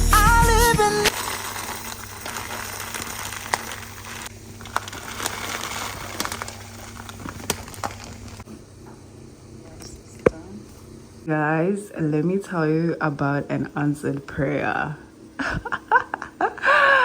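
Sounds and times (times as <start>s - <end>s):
food sizzling in a pot: 1.0s - 8.5s.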